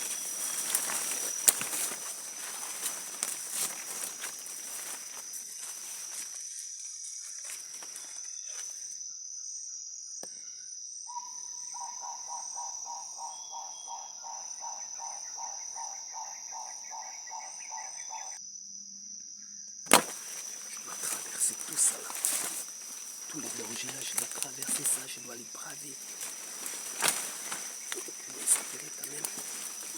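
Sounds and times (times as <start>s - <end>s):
footsteps on forest litter: 0.0s - 8.8s, 19.9s - 29.9s
insects shrilling: 0.0s - 9.0s, 19.9s - 29.9s.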